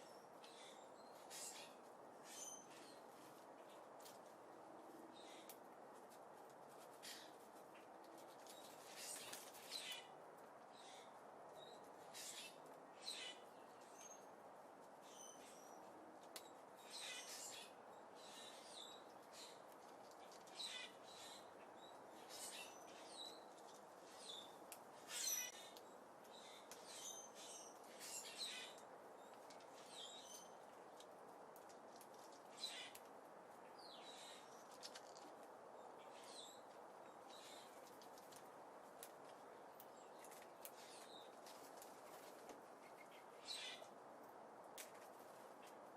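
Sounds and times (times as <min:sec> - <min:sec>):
small birds chirping: 0:00.0 - 0:44.2.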